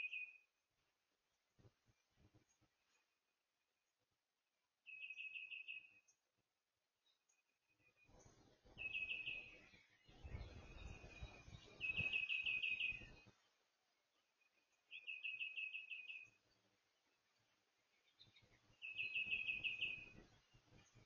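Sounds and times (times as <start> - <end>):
songbird singing: 0.0 - 0.6, 4.8 - 21.0.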